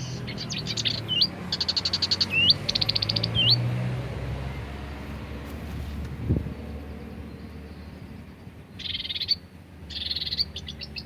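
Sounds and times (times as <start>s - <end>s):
bird singing trills: 0.0s - 3.7s, 6.6s - 11.0s.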